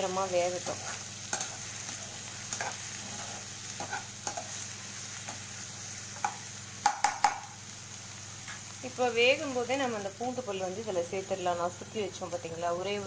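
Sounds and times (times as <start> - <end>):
onions sizzling in hot oil: 0.0 - 13.0
spatula knocking against pan: 6.2 - 7.4.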